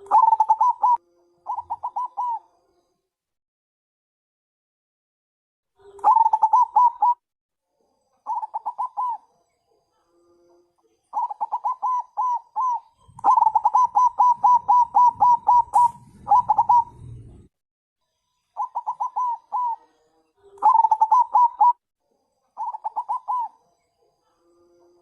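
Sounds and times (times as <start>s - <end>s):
dove cooing: 0.0s - 2.4s, 5.8s - 7.2s, 8.3s - 9.3s, 11.1s - 17.5s, 18.6s - 21.8s, 22.6s - 23.6s
faint low rumble: 14.8s - 17.5s.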